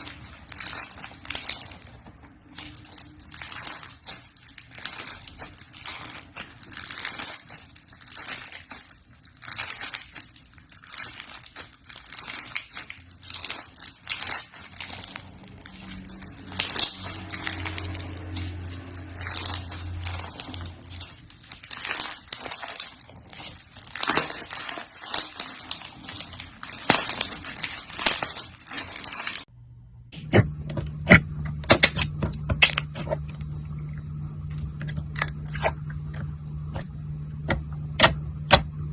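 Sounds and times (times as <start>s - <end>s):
steady low hum: 29.5s - 38.9s.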